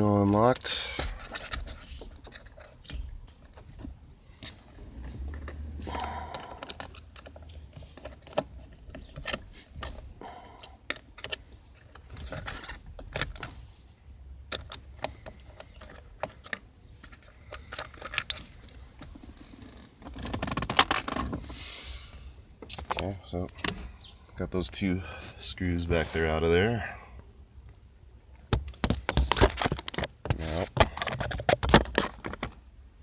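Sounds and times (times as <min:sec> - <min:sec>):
tools and screws clinking: 0:05.4 - 0:13.5.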